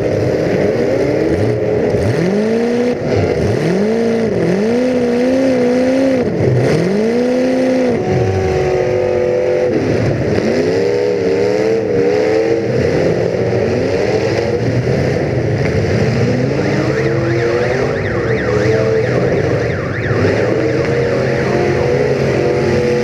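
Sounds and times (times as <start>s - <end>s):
car engine revving: 0.0s - 23.0s
siren sweeping up and down: 16.0s - 23.0s.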